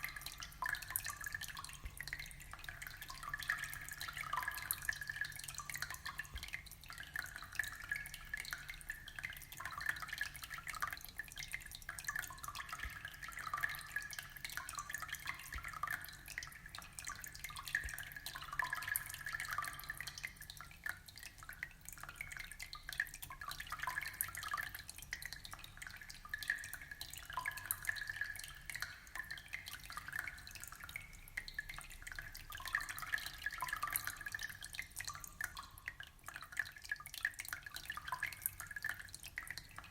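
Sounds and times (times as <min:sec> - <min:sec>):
aquarium water trickling and bubbling: 0:00.0 - 0:39.9
water drips and plinks: 0:00.0 - 0:39.9.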